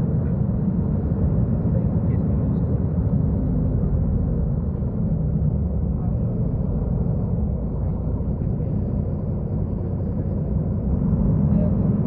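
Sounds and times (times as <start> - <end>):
bus diesel engine rumbling: 0.0 - 12.0.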